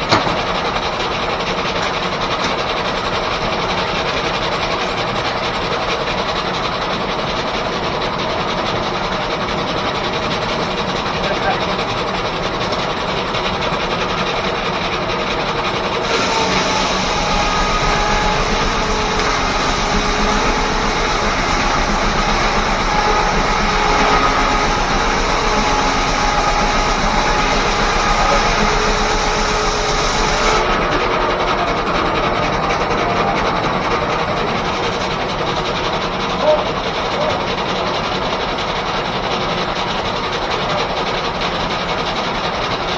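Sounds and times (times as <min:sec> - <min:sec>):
steam-driven sawmill running: 0:00.0 - 0:42.9
saw whining through log: 0:15.9 - 0:37.2.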